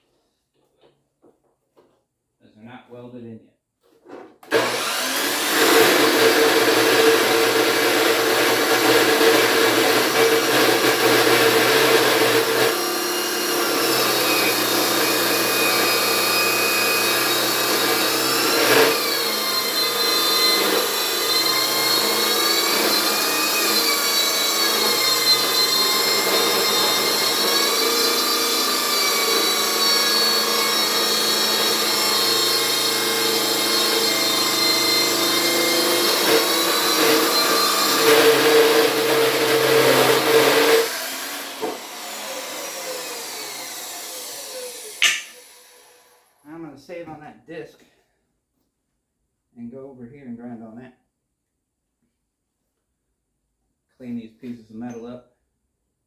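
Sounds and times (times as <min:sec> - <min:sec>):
abrasive disc cutting steel: 0:04.5 - 0:46.1.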